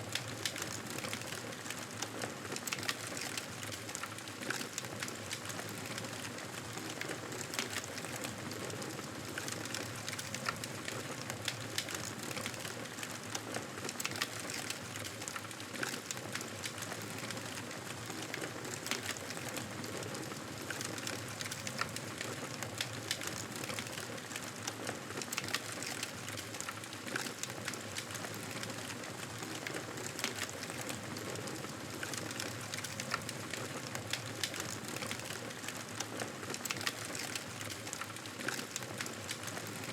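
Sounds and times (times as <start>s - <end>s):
campfire crackling and popping: 9.3s - 19.8s, 20.6s - 24.4s, 25.2s - 39.9s.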